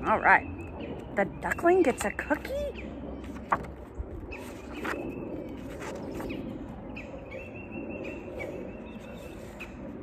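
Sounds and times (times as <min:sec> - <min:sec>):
outdoor background noise: 0:00.0 - 0:10.0
paper pages rustling: 0:03.2 - 0:06.7.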